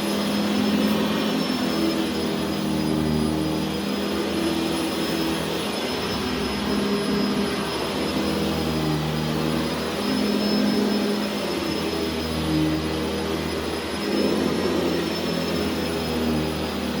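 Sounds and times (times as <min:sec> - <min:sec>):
vacuum motor whining: 0:00.0 - 0:17.0.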